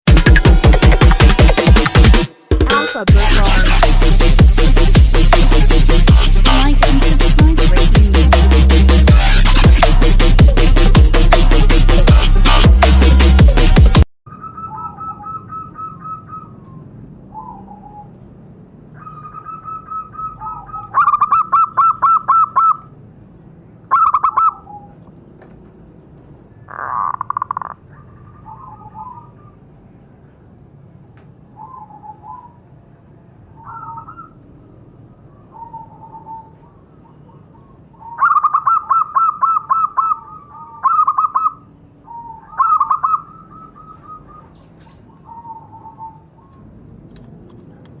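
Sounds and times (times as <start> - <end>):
doves cooing: 14.3 - 18.1, 19.0 - 22.9, 26.6 - 29.7, 35.3 - 47.0.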